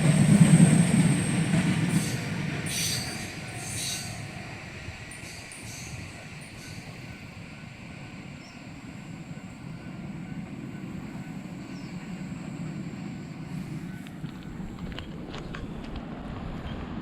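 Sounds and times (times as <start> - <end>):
crossing warning bell dinging: 0.0 - 15.2
train rumble: 0.0 - 17.0.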